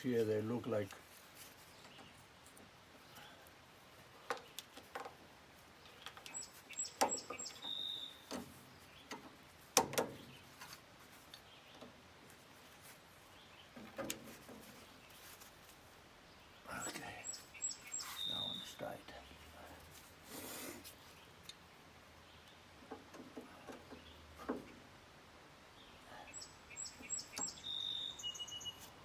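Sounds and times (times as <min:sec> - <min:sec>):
bird chirps: 0:05.8 - 0:09.2, 0:16.3 - 0:19.7, 0:25.7 - 0:29.0.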